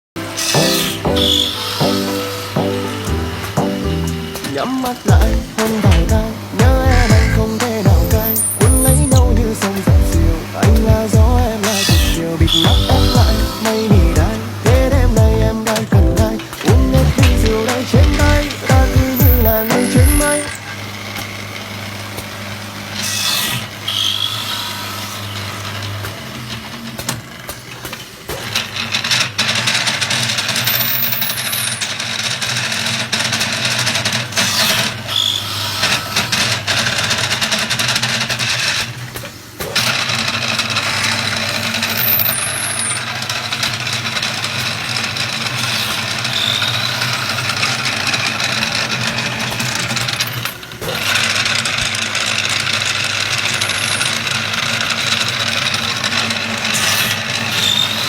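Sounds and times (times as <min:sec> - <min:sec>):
hiss of wood cutting: 0:00.2 - 0:14.7
wood lathe running: 0:00.2 - 0:26.9, 0:39.8 - 0:58.0.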